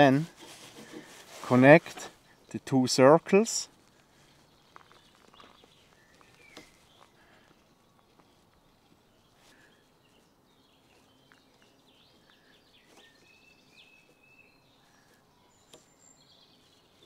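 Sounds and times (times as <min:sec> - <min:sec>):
faint high bird chirps: 0:04.4 - 0:17.0.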